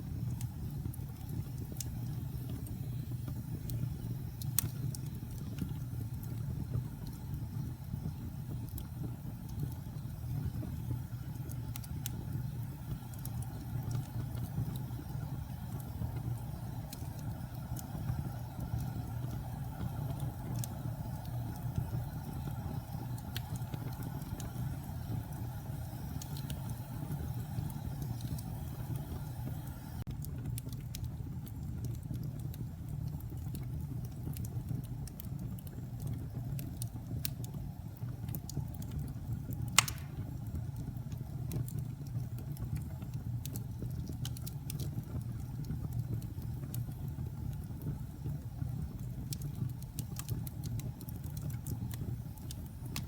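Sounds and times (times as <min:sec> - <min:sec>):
fire crackling: 0:00.0 - 0:53.0
fire rumbling in a fireplace: 0:00.0 - 0:53.0
loud pop of fire: 0:39.7 - 0:40.4.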